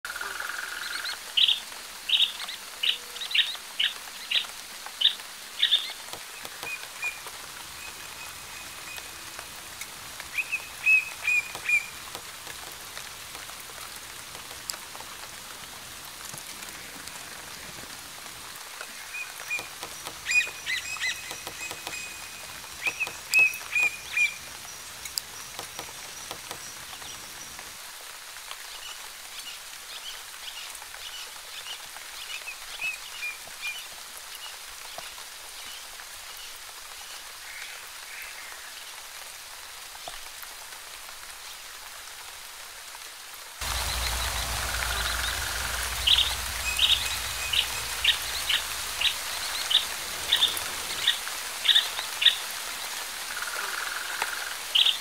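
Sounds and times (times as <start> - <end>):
steady background hiss: 0.1 - 55.0
birds chirping and trilling: 0.7 - 16.1, 18.9 - 27.7, 43.6 - 53.0.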